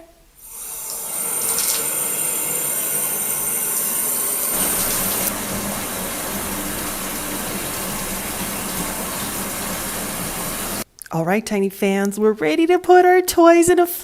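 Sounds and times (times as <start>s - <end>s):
water pouring into bathtub: 0.6s - 3.8s, 4.5s - 10.9s.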